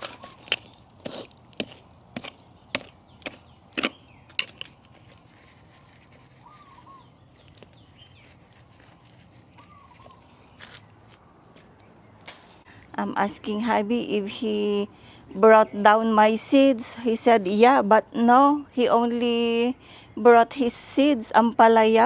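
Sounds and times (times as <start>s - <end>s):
hand tool knocks and clicks: 0.0s - 4.7s.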